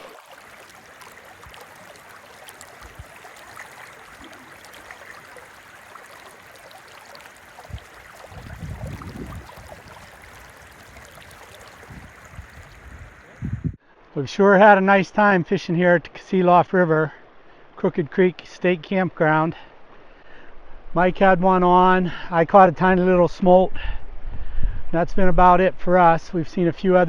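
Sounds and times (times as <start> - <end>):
river water flowing: 0.0 - 13.6.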